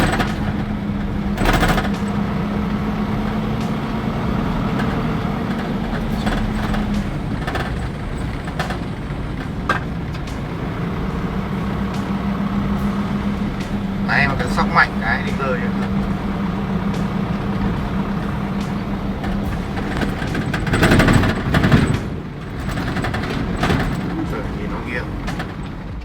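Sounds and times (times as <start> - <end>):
short knocks: 0.0 - 12.1
heavy truck engine running: 0.0 - 26.0
road rumble: 0.0 - 26.0.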